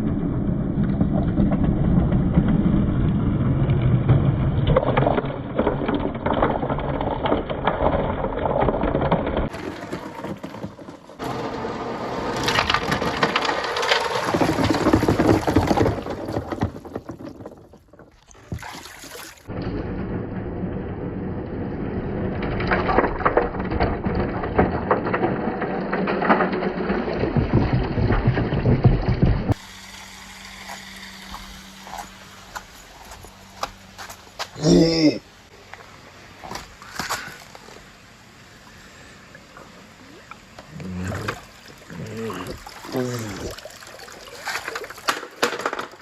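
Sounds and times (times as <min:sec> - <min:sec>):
rushing water: 0:39.8 - 0:45.4.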